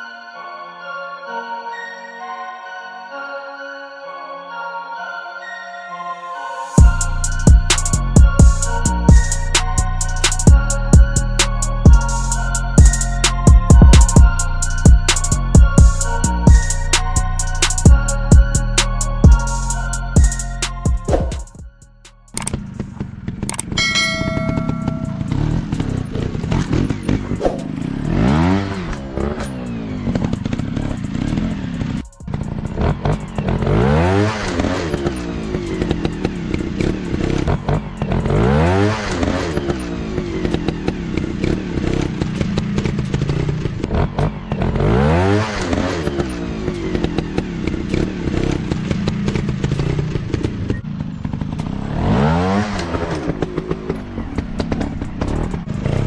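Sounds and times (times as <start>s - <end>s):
dirt bike engines revving: 22.5s - 56.0s.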